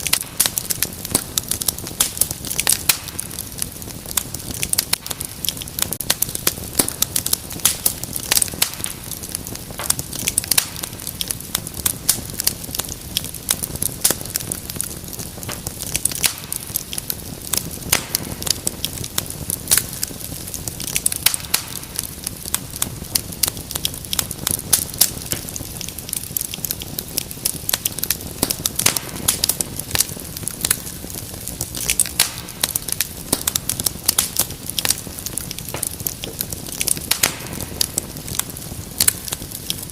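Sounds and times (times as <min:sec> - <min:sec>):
low rumble of burning: 0:00.0 - 0:39.9
wood fire crackling and popping: 0:00.0 - 0:39.9.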